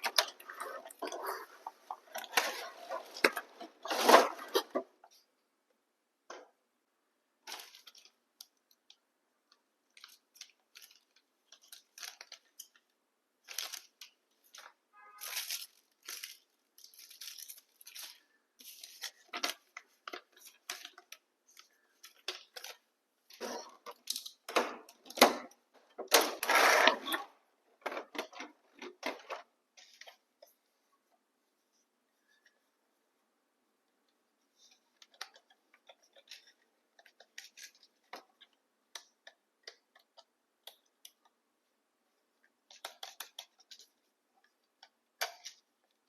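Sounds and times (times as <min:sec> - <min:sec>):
packaging rustling and crinkling: 0:07.5 - 0:08.2, 0:09.9 - 0:22.9.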